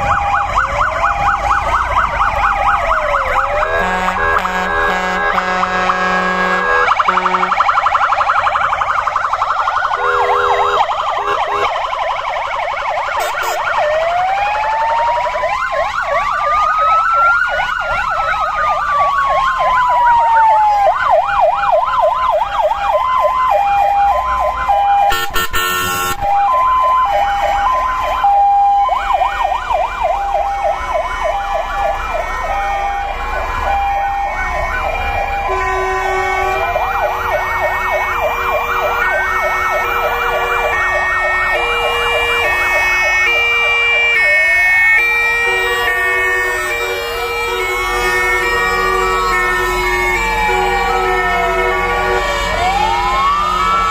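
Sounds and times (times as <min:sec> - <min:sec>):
two-tone hi-lo siren: 0:00.0 - 0:53.9
wailing siren: 0:00.0 - 0:53.9
yelping fire engine siren: 0:00.0 - 0:53.9.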